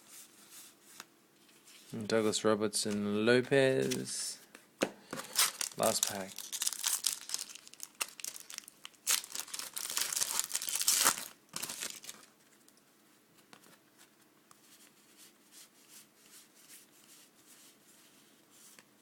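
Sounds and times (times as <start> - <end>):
cards rustling: 2.8 - 4.2, 5.1 - 12.3
wrapper tearing and crinkling: 5.2 - 12.3.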